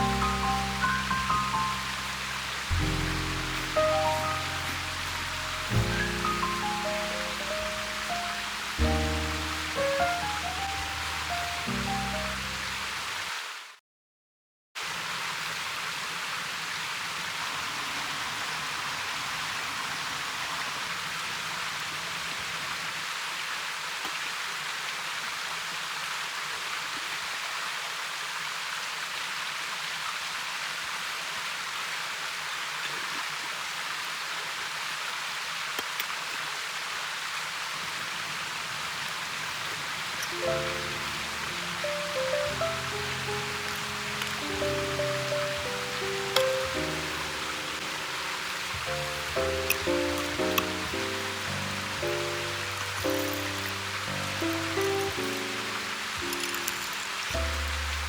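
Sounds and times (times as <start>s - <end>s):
background music: 0.0s - 13.0s, 40.3s - 58.0s
stream flowing: 0.0s - 13.7s, 14.8s - 58.0s.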